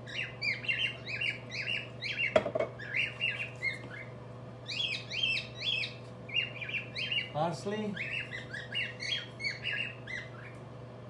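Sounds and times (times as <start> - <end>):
bird squawking and chirping: 0.0 - 10.6
steady low hum: 0.0 - 11.0
knock: 2.4 - 2.7.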